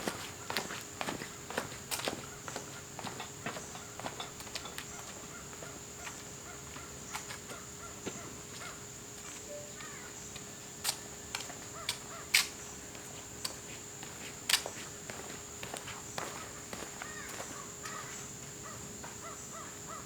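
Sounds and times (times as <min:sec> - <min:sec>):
bird call: 0:09.5 - 0:10.2.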